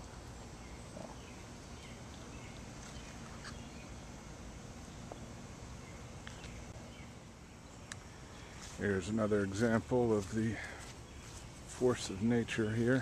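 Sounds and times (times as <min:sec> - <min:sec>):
steady background hum: 0:00.0 - 0:13.0
faint bird chirps: 0:00.6 - 0:04.0.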